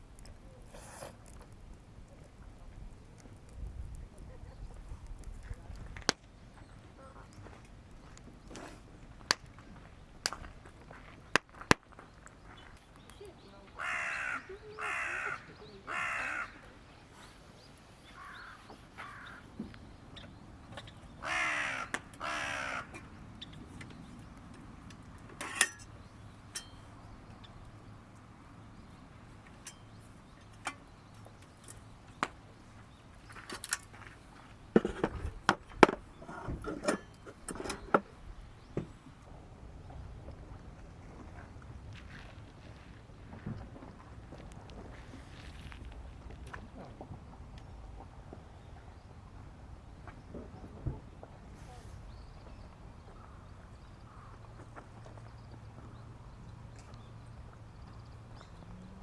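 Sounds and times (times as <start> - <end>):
sharp pops and clicks: 1.1 - 6.3
crows cawing: 13.8 - 16.7, 18.2 - 19.6, 21.2 - 23.1, 54.1 - 54.5.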